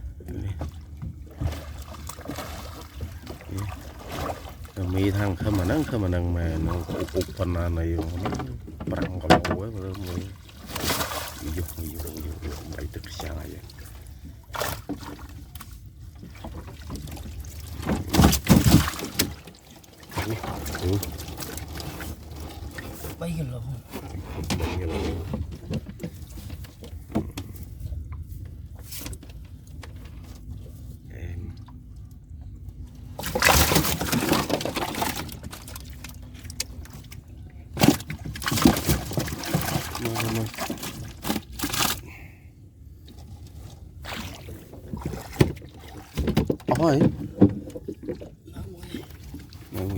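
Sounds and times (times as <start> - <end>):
water sloshing around boat: 0.0 - 49.9.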